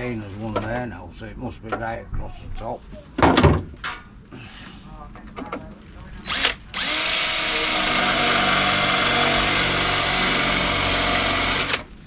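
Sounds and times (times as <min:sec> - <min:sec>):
electric drill whining: 0:06.3 - 0:11.9.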